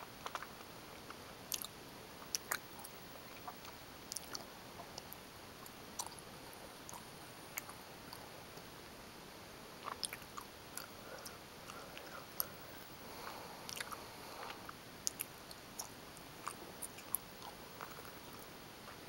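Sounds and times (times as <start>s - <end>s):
person chewing: 0.2s - 0.6s, 1.5s - 6.2s, 9.8s - 19.0s.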